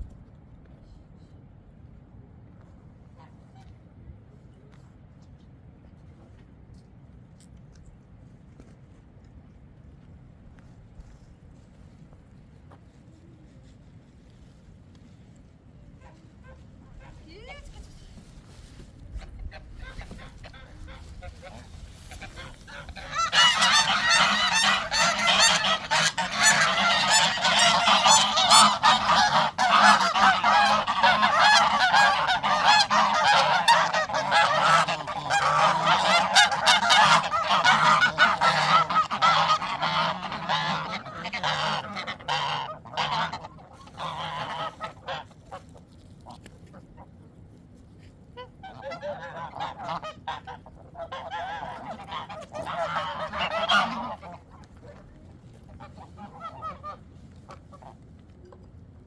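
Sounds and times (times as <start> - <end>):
flock of poultry calling: 19.5 - 45.3, 48.6 - 54.8, 55.8 - 57.9.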